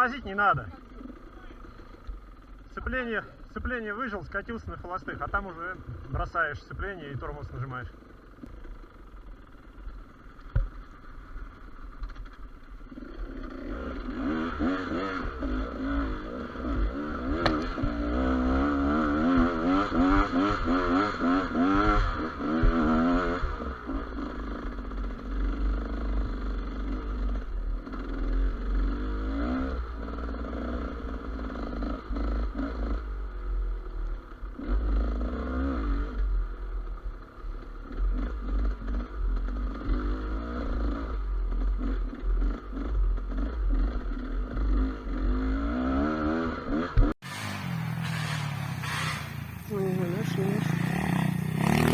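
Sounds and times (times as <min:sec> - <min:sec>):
motorcycle engine revving: 0:00.0 - 0:51.9
deep rumble of wind: 0:03.5 - 0:07.2.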